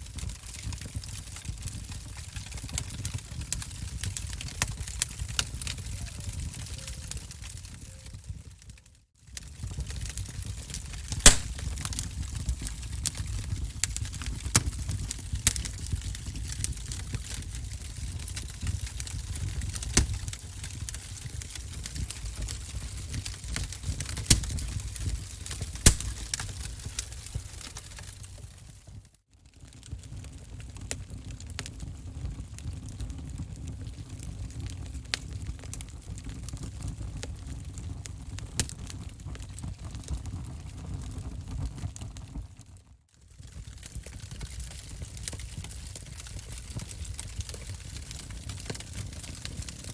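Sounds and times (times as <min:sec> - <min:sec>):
wood fire crackling: 0:00.0 - 0:28.9, 0:29.5 - 0:42.2, 0:43.2 - 0:49.9
loud pops of fire: 0:09.3 - 0:28.8, 0:34.1 - 0:41.8.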